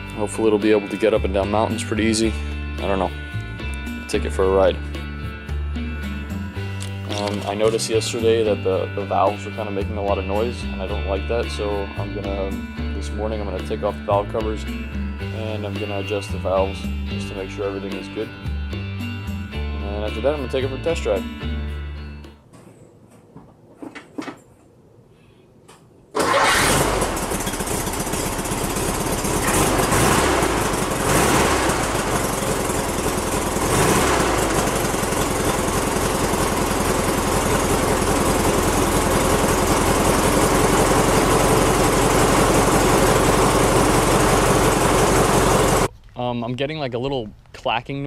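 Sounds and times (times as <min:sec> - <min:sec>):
car engine starting and revving: 0:26.2 - 0:45.9
engine clacking noise: 0:26.2 - 0:45.9.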